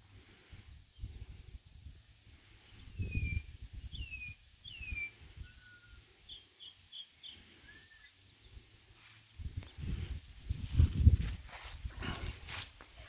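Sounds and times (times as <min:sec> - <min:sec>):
high bird chirps: 0:02.9 - 0:08.5.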